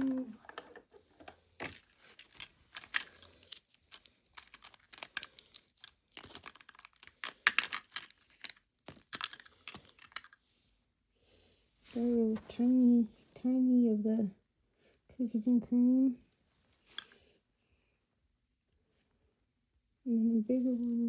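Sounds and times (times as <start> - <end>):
plastic toy pieces clicking: 0.0 - 10.4.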